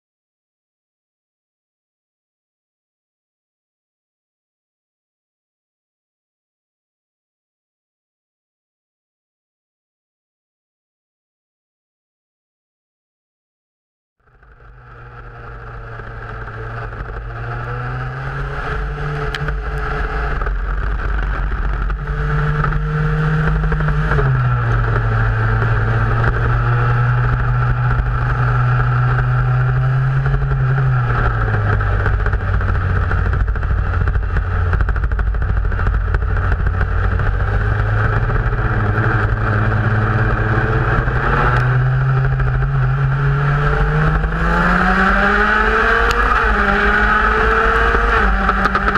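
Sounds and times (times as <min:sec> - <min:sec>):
race car engine running: 0:14.2 - 0:48.9.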